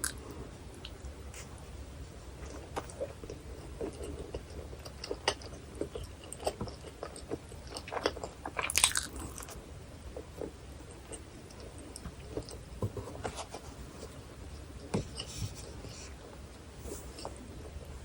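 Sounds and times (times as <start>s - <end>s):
chewing with wet clicks: 2.5s - 9.6s, 10.2s - 12.6s
crunching bite: 7.7s - 9.6s.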